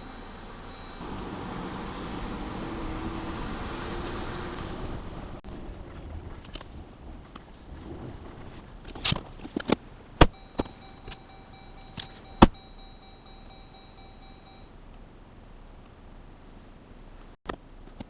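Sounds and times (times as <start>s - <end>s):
faint steady high tone: 0.0s - 1.5s, 10.3s - 15.0s.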